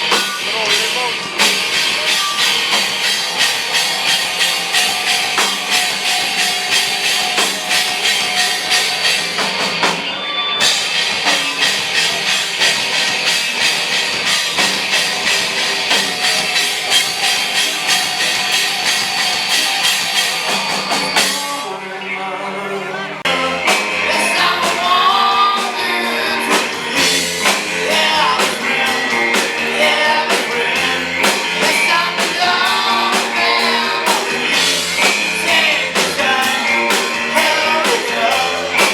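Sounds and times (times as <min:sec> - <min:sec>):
rock band playing: 0:00.0 - 0:38.9
person singing: 0:21.2 - 0:38.9.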